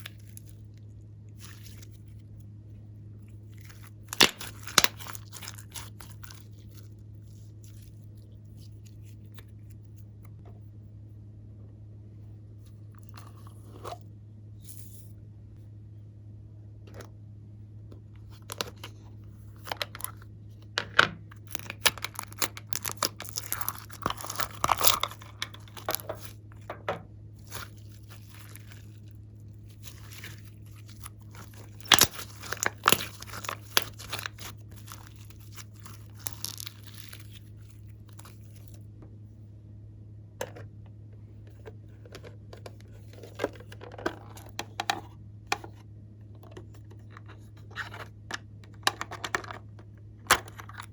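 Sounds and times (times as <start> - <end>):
steady low hum: 0.0 - 50.9
slime crackling and popping: 3.6 - 6.9, 21.3 - 26.4, 27.4 - 38.8.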